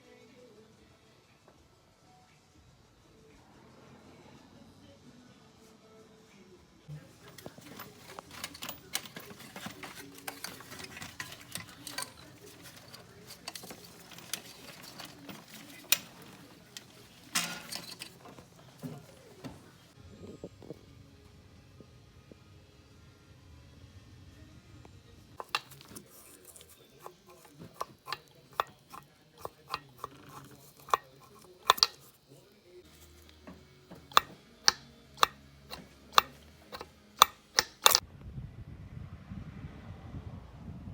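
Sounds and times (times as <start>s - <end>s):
hard objects clicking and clinking: 7.1s - 19.2s, 25.4s - 32.3s, 32.9s - 38.0s.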